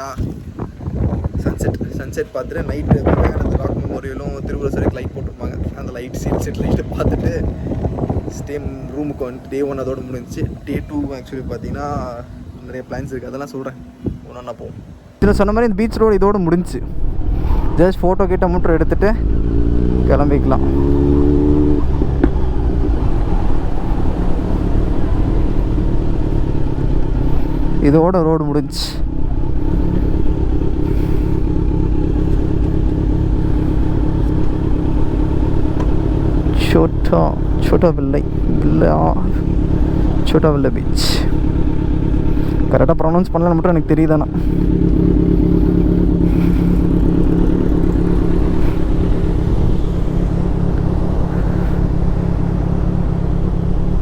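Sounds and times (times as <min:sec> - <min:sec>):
low wind rumble: 0:00.0 - 0:54.0
motorcycle engine running: 0:15.2 - 0:54.0.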